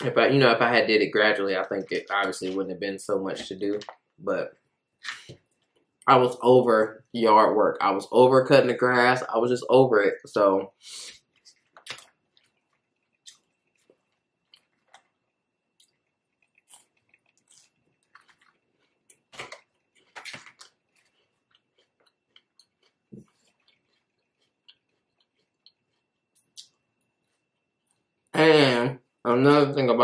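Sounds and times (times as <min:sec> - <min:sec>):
person chewing food: 0:11.1 - 0:28.3.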